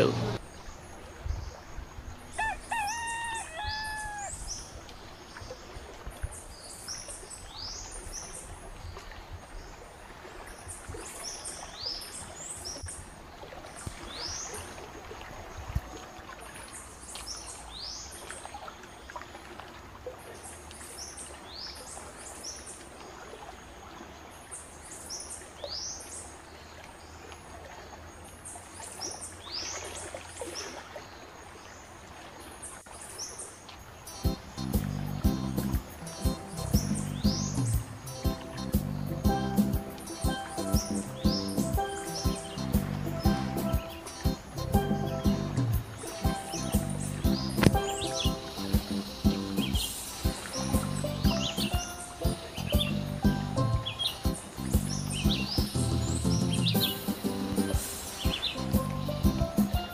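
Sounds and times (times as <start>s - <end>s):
birds chirping: 0.0s - 8.6s, 32.4s - 59.9s
lower bird call: 2.4s - 4.7s, 39.2s - 59.9s.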